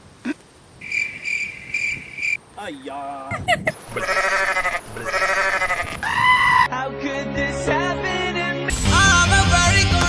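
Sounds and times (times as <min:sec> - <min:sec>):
goat bleating: 0:03.9 - 0:06.7.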